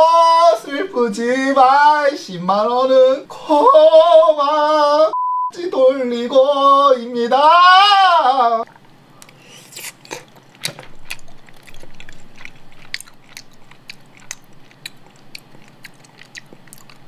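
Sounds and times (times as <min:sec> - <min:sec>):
chewing: 0:08.6 - 0:17.0
mouth clicks and smacks: 0:08.7 - 0:17.0.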